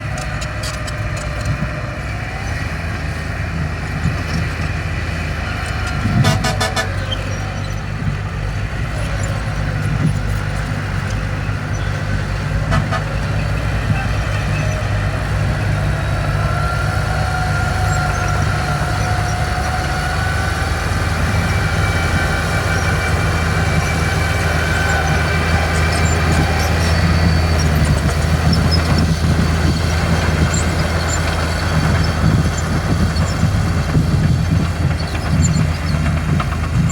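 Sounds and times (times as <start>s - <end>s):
bulldozer diesel engine: 0.0s - 36.9s.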